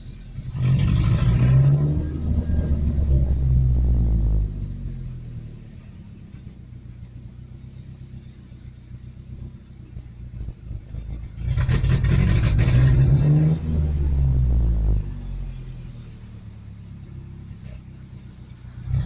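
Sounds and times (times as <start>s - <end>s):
truck engine rumbling: 0.0s - 19.0s
truck engine cranking: 11.2s - 14.6s.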